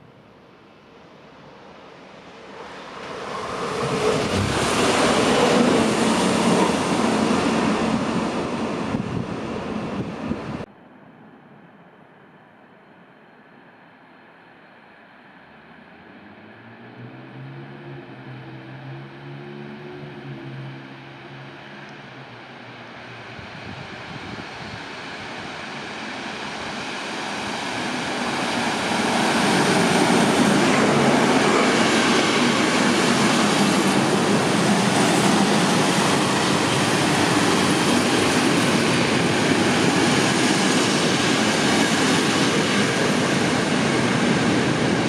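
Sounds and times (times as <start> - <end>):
diesel locomotive approaching: 0.0 - 45.0
train wheels rumbling on rails: 2.2 - 10.7, 20.5 - 45.0.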